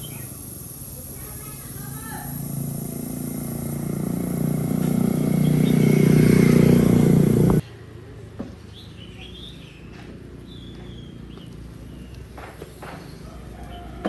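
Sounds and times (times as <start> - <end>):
birds chirping softly: 0.0 - 7.6
motor droning: 0.0 - 7.6.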